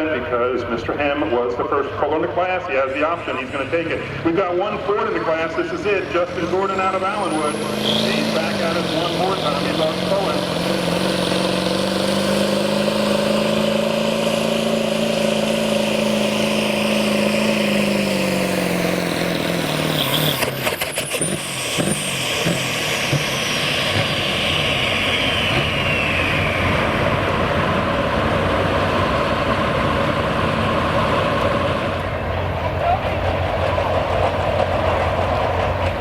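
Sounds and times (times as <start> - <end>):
truck engine revving: 0.0 - 36.0
high whine falling in pitch: 21.1 - 28.0.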